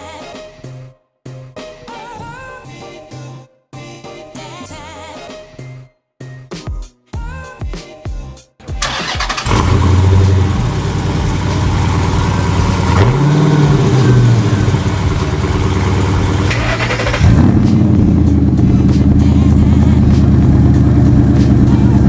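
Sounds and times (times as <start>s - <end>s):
car engine running: 9.3s - 22.0s.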